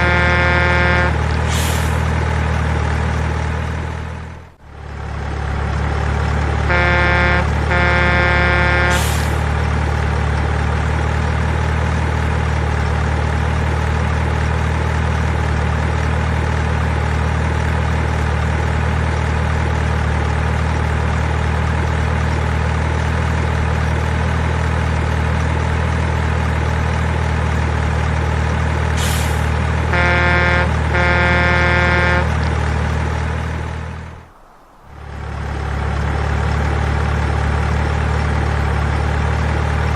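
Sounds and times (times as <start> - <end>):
air horn blasts: 0.0 - 2.0, 6.6 - 9.4, 29.0 - 32.6
diesel truck engine running: 0.0 - 39.9
air hiss: 1.5 - 2.0, 8.9 - 9.4, 29.0 - 29.5.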